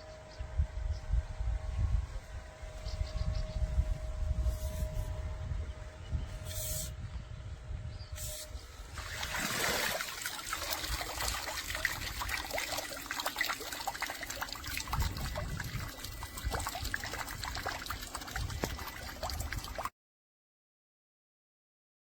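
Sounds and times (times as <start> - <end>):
water trickling and splashing: 8.8 - 19.9
water drips: 9.0 - 19.9.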